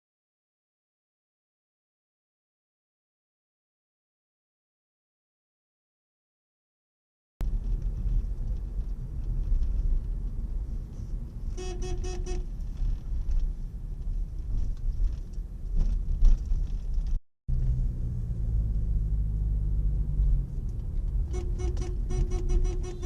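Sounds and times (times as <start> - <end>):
car road rumble: 7.4 - 23.0
car horn: 11.5 - 12.5, 21.3 - 23.0.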